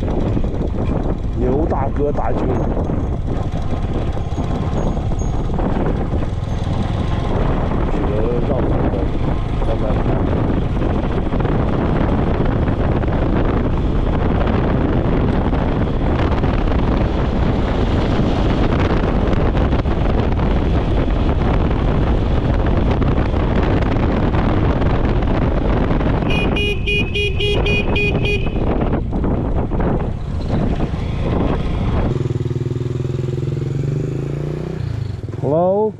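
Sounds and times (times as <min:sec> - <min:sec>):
motorcycle engine: 0:00.0 - 0:35.9
wind rumble: 0:00.0 - 0:35.9
vehicle horn short toots: 0:26.2 - 0:28.8.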